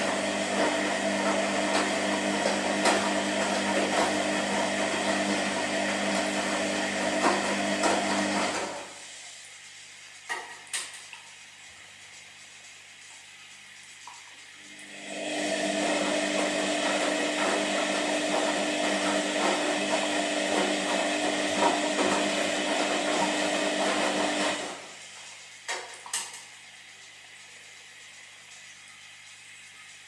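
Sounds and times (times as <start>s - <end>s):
washing machine motor turning drum: 0.0s - 30.0s.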